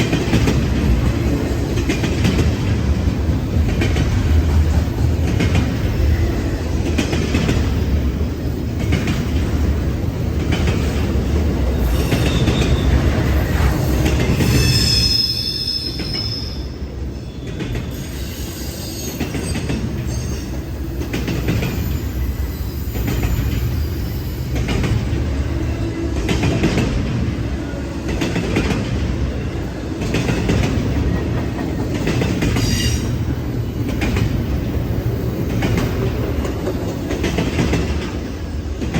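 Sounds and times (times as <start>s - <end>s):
high wheel squeal: 11.7s - 20.5s.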